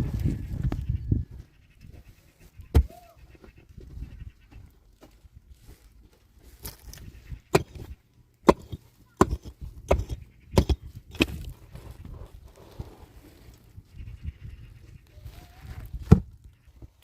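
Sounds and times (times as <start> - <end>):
hand tool chopping: 7.5 - 11.5.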